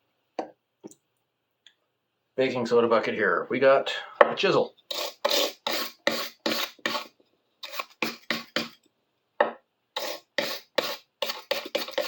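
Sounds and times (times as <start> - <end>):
chisel scrubbed by hand: 4.9 - 8.8, 10.0 - 12.0.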